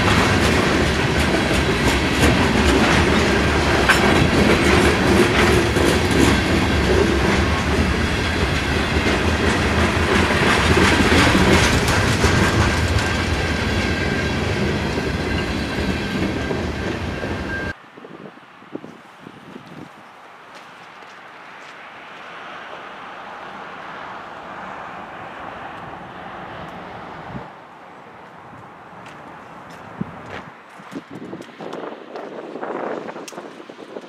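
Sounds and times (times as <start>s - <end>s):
freight train rolling past: 0.0s - 17.8s
wheels clacking over rail joints: 0.0s - 17.8s.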